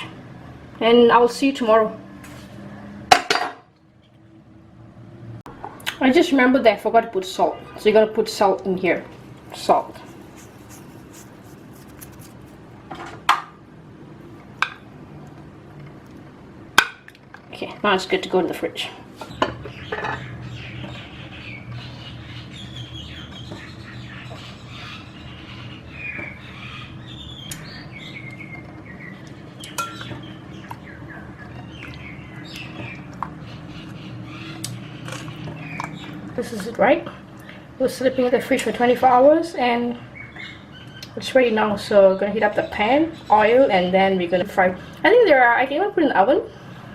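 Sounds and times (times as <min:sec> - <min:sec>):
small birds chirping: 0:19.2 - 0:37.7, 0:39.6 - 0:44.9
dishes and utensils clinking: 0:29.8 - 0:30.2.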